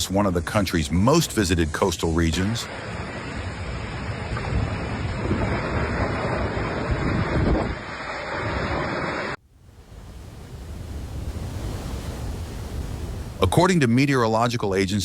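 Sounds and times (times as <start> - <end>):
wind buffeting microphone: 2.3 - 9.2, 9.8 - 13.7.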